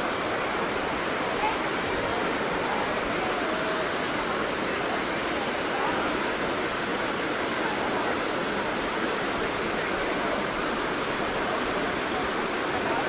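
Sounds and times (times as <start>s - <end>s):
water cascading over rocks: 0.0s - 13.0s.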